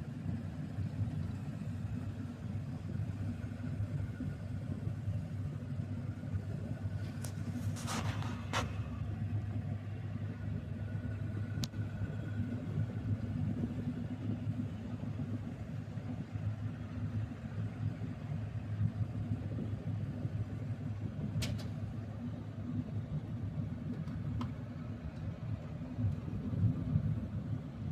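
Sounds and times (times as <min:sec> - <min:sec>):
vehicle driving rumble: 0:00.0 - 0:27.9.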